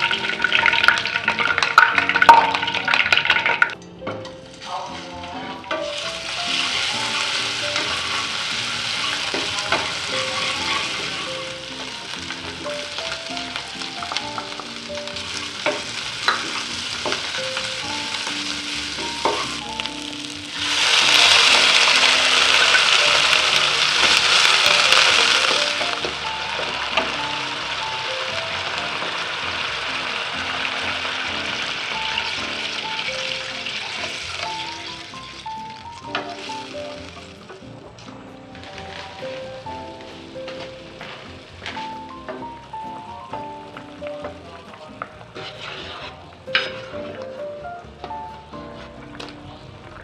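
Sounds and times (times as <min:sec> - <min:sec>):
spice paste sizzling in oil: 0:05.9 - 0:47.0
spatula scraping and tapping pan: 0:45.0 - 0:47.2.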